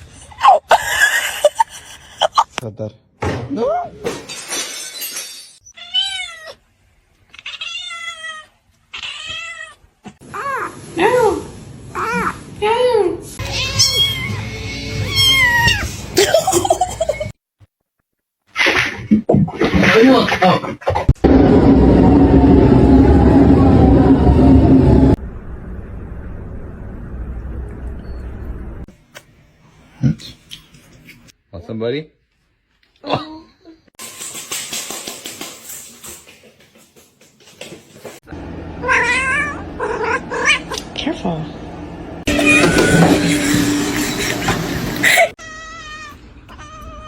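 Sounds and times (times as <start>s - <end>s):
cat meowing: 5.8s - 6.6s, 7.3s - 9.8s, 13.4s - 15.9s, 38.8s - 40.8s, 42.3s - 43.3s, 45.4s - 47.0s
noisy sound: 21.0s - 28.8s.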